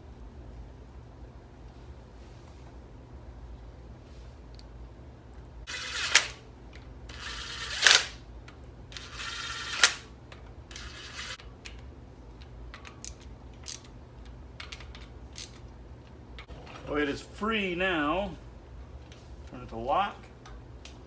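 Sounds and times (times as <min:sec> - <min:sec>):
sharp metallic clicks with rasp: 0:05.7 - 0:06.4, 0:07.1 - 0:08.2, 0:09.0 - 0:10.1.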